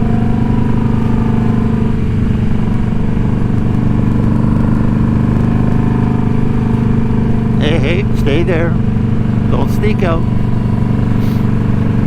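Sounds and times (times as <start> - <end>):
motorcycle engine droning steadily: 0.0 - 12.0.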